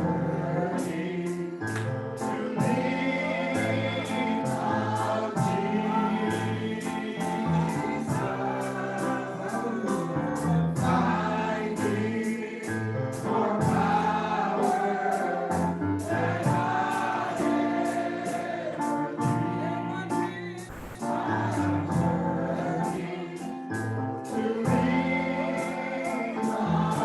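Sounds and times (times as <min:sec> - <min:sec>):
choir singing: 0:00.0 - 0:20.1, 0:20.7 - 0:27.0
keyboard bass and drums: 0:20.7 - 0:21.1.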